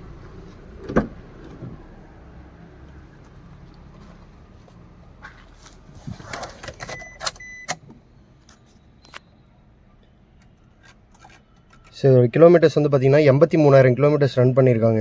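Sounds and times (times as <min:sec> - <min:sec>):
short electronic beeps: 0:06.8 - 0:07.8.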